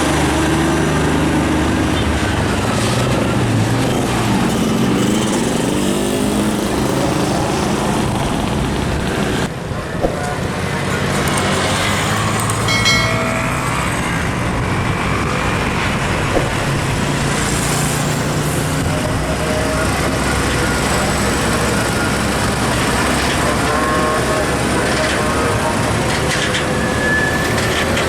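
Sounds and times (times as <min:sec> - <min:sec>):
heavy trucks driving past: 0:00.0 - 0:28.0
high-pitched squeal: 0:11.5 - 0:28.0.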